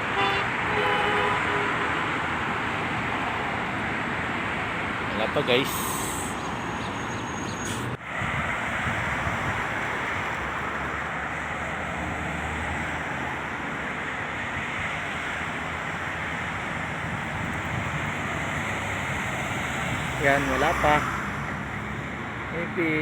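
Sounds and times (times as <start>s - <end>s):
roadside traffic noise: 0.0s - 23.0s
wind rushing over microphone: 7.8s - 22.5s.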